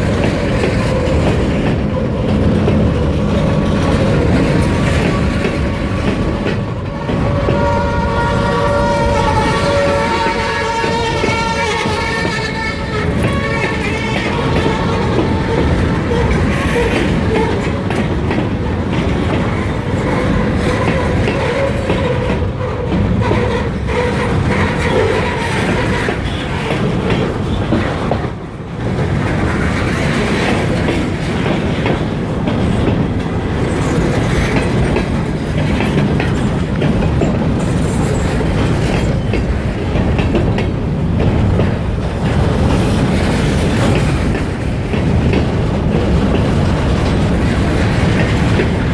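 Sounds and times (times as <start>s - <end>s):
freight train rumbling past: 0.0s - 48.9s
wheels clicking over rail joints: 0.0s - 48.9s.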